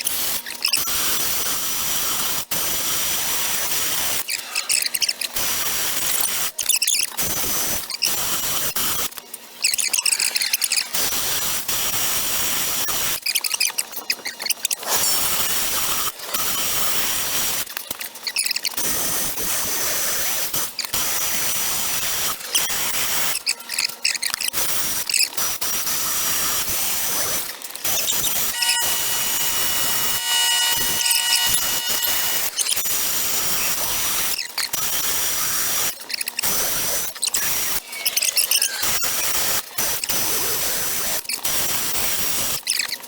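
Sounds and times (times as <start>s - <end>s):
die grinder whining: 27.9s - 32.8s
grinder squealing: 27.9s - 32.9s.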